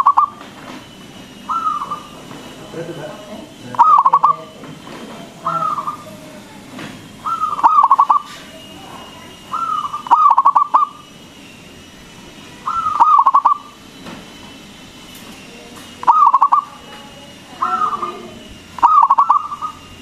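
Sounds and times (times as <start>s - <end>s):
dove cooing: 0.0s - 0.4s, 1.4s - 2.3s, 3.5s - 6.5s, 7.2s - 11.2s, 12.6s - 13.9s, 16.0s - 20.0s.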